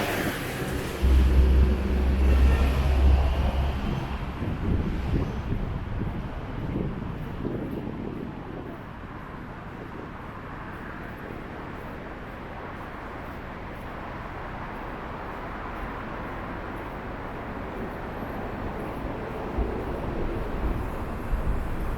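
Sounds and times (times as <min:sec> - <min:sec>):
low vehicle rumble: 0:00.0 - 0:08.6
city street traffic: 0:00.0 - 0:21.9.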